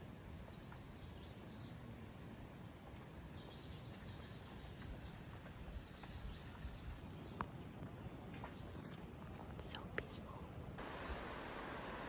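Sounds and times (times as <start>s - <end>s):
low hiss: 0.0s - 7.1s, 9.6s - 12.0s.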